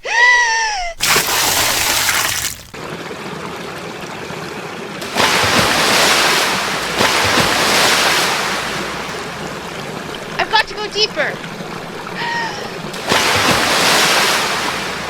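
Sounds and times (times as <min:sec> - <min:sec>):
water splash: 0:01.0 - 0:03.0, 0:05.0 - 0:15.0
rushing water: 0:01.0 - 0:15.0.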